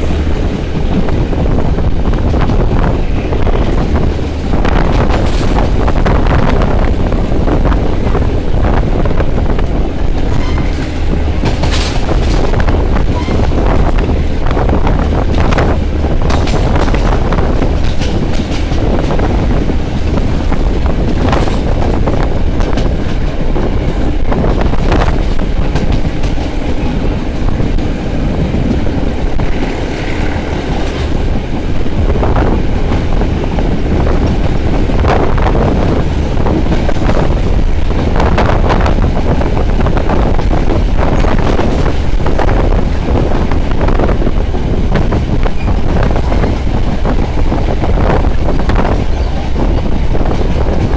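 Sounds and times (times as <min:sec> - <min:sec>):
train rumbling along track: 0:00.0 - 0:50.9
train wheels clacking: 0:00.0 - 0:50.9.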